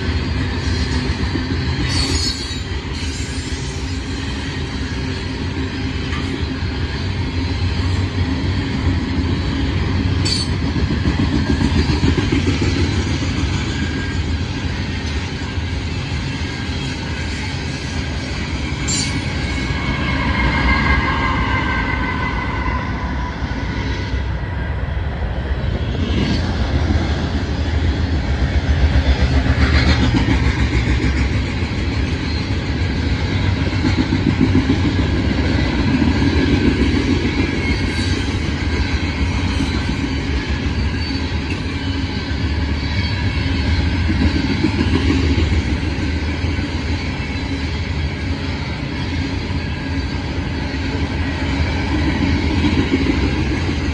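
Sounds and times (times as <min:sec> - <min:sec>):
train wheels clattering on rails: 0:00.0 - 0:23.9, 0:25.9 - 0:53.9
diesel locomotive whine: 0:00.0 - 0:53.9.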